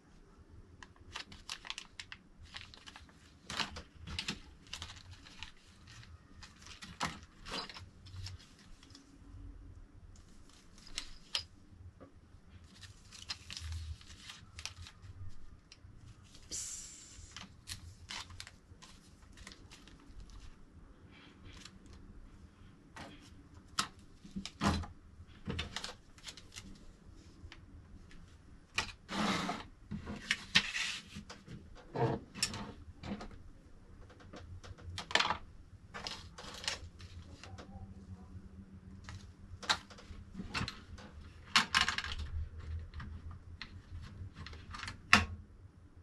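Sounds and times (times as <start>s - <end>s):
packaging rustling: 1.0s - 9.0s, 12.6s - 15.5s
rustling scrape: 29.0s - 31.3s.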